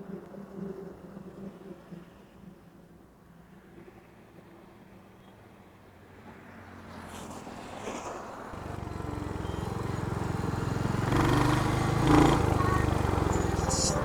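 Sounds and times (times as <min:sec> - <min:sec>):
motorcycle engine running: 0:08.6 - 0:14.0.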